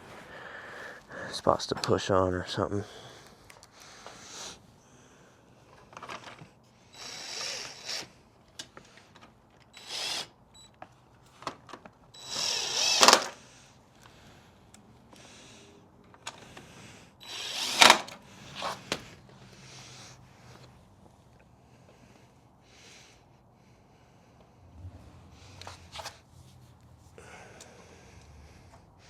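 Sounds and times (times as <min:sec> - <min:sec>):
cordless drill running: 0:06.9 - 0:08.2, 0:09.7 - 0:10.4, 0:12.2 - 0:13.4, 0:17.2 - 0:19.0.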